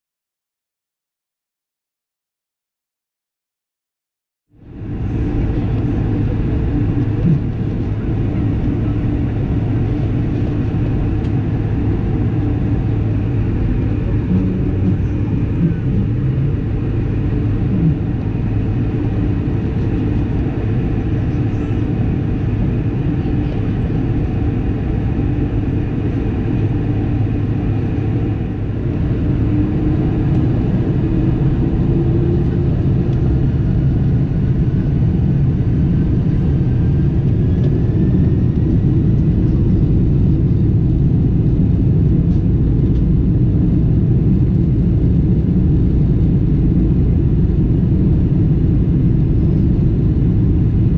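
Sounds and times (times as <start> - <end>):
jet engine cabin rumble: 4.5 - 50.9
engine whine rising in pitch: 4.6 - 41.1.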